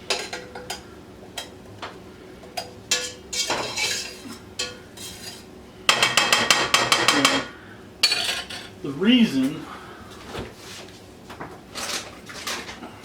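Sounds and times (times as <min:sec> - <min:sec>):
spoon clinking against pot: 0:02.6 - 0:08.7
spoon scraping pot: 0:02.9 - 0:05.5.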